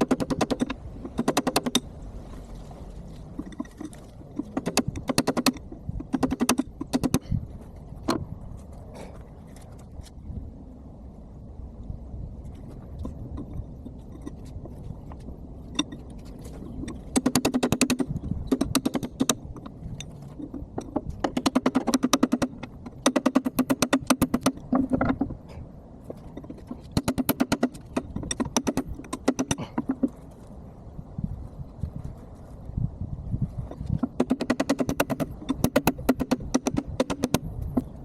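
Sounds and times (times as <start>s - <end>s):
rapid metallic tool clicks: 4.6s - 7.2s.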